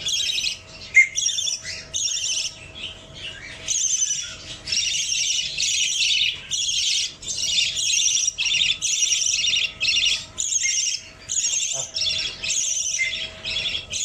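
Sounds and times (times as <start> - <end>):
budgerigar chirping: 0.0 - 14.0.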